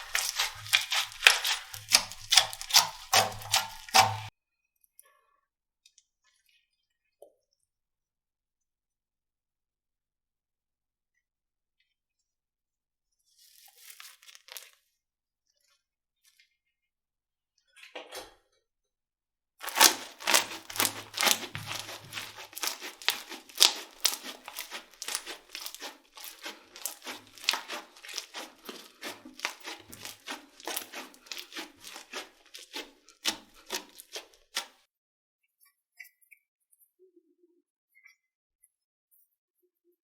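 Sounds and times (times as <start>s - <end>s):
slime crackling and popping: 0.0s - 4.3s, 19.6s - 34.8s.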